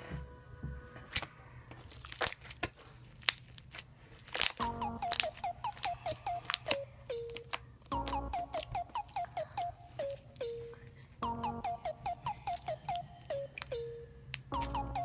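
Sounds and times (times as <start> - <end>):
slime popping and crackling: 1.8 - 9.2
melody of short falling notes: 4.6 - 10.6, 11.2 - 15.0
background music: 4.6 - 15.0.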